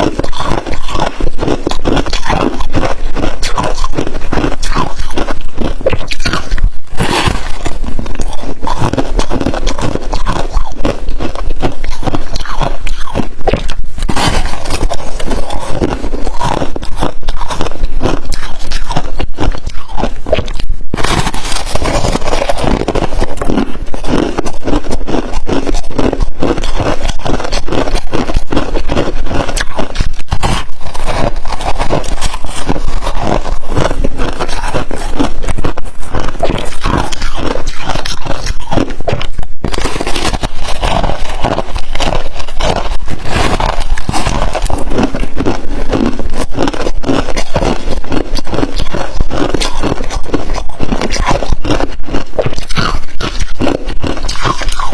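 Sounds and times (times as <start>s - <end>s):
frost crunching and scraping: 0.0s - 54.9s.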